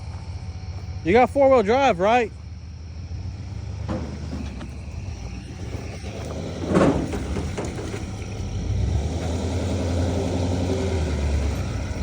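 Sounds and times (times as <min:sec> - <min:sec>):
vehicle engine rumbling: 0:00.0 - 0:12.0
loud clunk: 0:03.8 - 0:04.9, 0:06.0 - 0:08.2.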